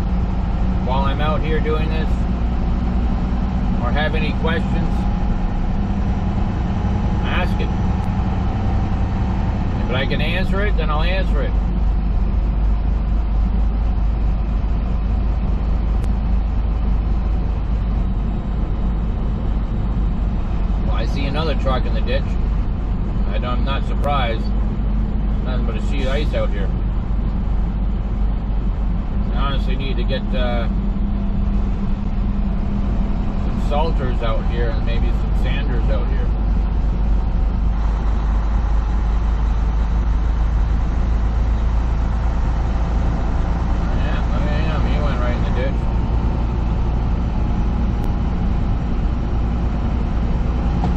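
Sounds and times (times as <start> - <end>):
road noise: 0.0 - 50.9
truck engine rumble: 0.0 - 50.9.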